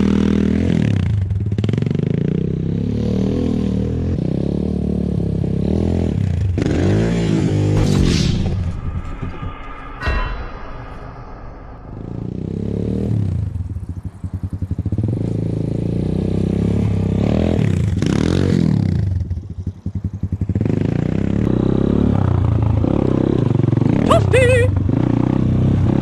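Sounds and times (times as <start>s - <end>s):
motorcycle engine revving: 0.0s - 8.0s, 12.3s - 24.0s.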